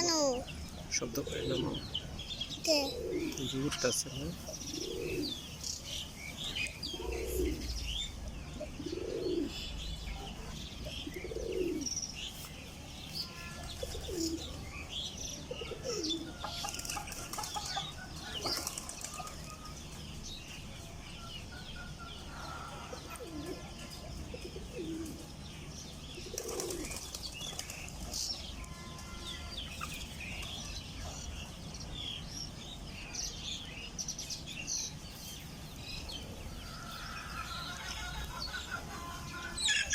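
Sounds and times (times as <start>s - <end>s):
chicks peeping: 0.1s - 39.9s.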